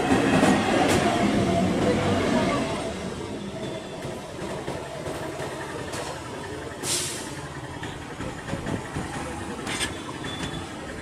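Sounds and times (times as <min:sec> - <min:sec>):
electric train rumbling: 0:00.0 - 0:11.0
short sharp hiss: 0:06.8 - 0:07.3.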